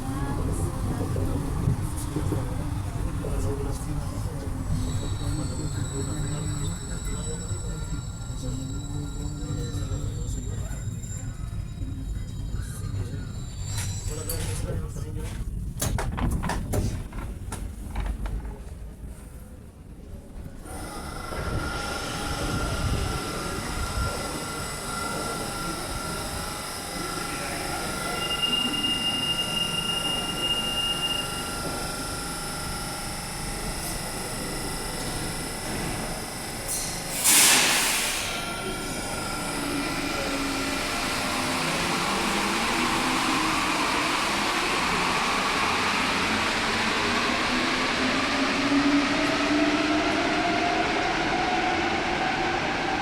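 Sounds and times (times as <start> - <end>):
metro train running rumble: 0.0 - 53.0
loud hiss of air: 36.7 - 38.5.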